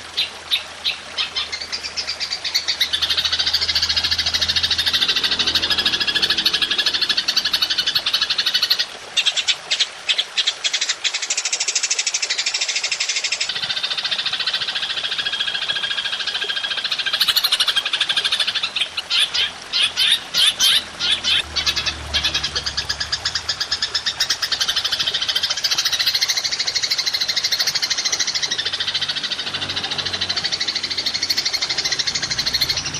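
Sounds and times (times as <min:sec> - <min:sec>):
grasshopper trilling: 0:02.4 - 0:08.9.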